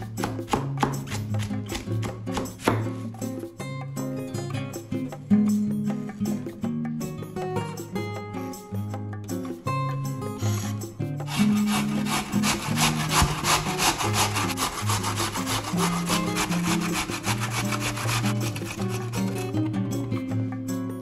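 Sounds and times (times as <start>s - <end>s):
soft background music: 0.0s - 21.0s
potato rasping on grater: 10.4s - 19.7s.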